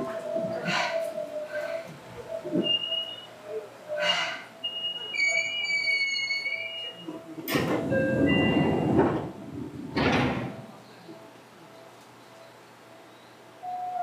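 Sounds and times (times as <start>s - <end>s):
loud rush of noise: 7.6s - 10.8s.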